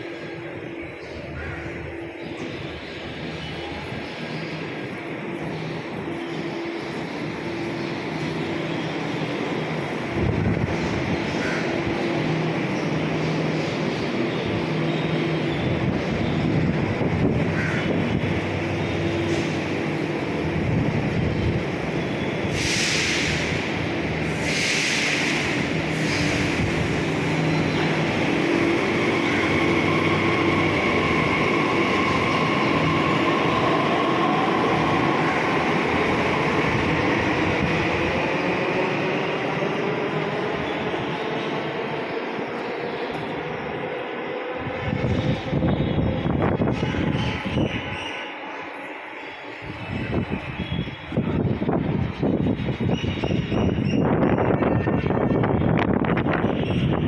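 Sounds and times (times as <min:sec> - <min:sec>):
metro train rumbling: 0:00.0 - 0:57.0
short bursts of hiss: 0:22.5 - 0:23.6, 0:24.3 - 0:26.6.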